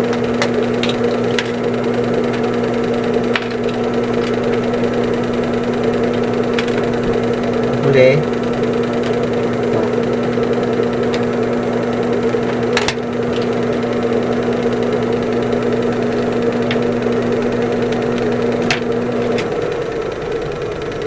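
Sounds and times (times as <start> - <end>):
sharp clicks: 0.0 - 20.0
sewing machine motor humming: 0.0 - 21.0.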